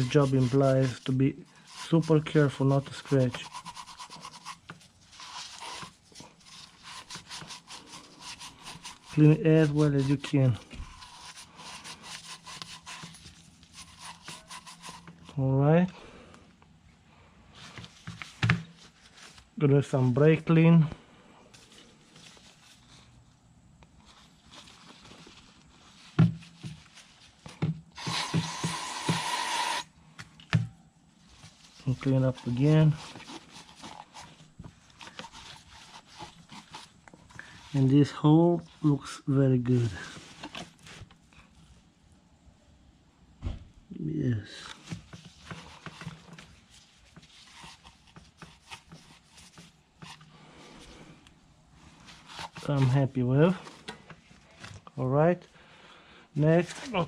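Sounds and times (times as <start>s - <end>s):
aerosol can spraying: 28.0s - 29.9s.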